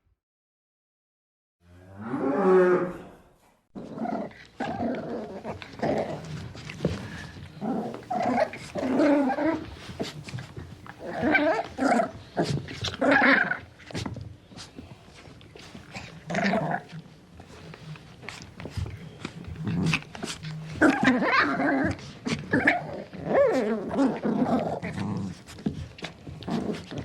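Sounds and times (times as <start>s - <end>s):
animal growling and calling: 1.7s - 6.4s, 7.6s - 10.1s, 11.0s - 13.7s, 16.0s - 17.0s, 19.6s - 25.4s.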